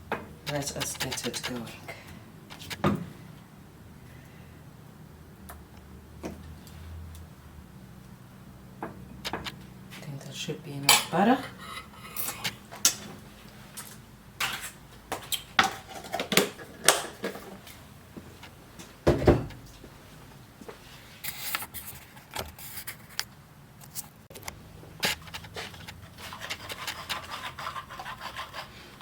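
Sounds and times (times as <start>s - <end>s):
utensils and cookware clinking: 10.8s - 13.1s, 14.4s - 17.6s.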